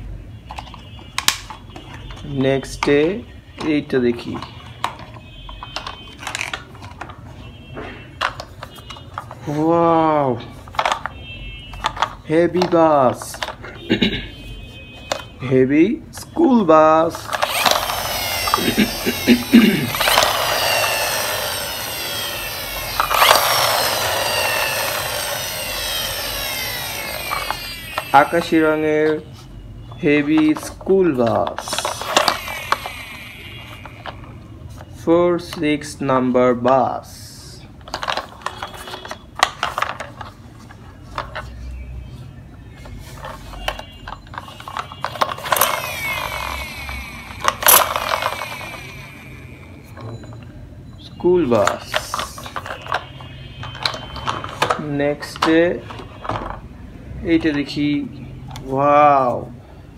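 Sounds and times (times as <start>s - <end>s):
toy clattering: 4.2s - 7.2s, 10.6s - 13.7s, 15.0s - 15.3s, 17.1s - 29.2s, 30.2s - 34.4s, 37.8s - 41.5s, 43.0s - 50.4s, 51.6s - 56.6s
toy wheels and gears whirring: 4.2s - 7.2s, 8.2s - 13.6s, 17.0s - 29.3s, 29.9s - 35.1s, 37.8s - 41.5s, 42.8s - 50.5s, 51.5s - 56.5s
gliding whir: 17.4s - 28.8s, 31.9s - 34.2s, 45.5s - 49.9s.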